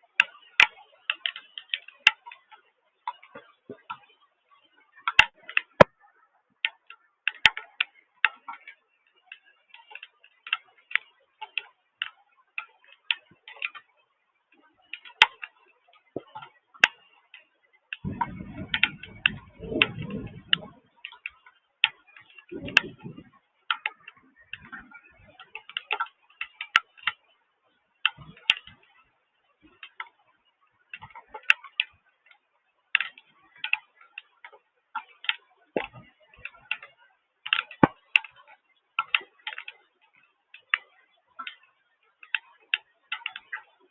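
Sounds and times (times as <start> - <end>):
raindrops ticking on hard surface: 14.9 - 27.2
low rumble: 18.0 - 20.9.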